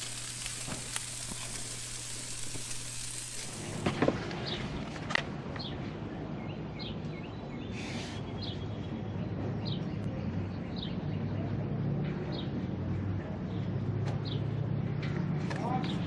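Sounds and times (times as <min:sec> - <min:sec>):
steady low hum: 0:00.0 - 0:04.0
brief hiss: 0:00.0 - 0:04.1.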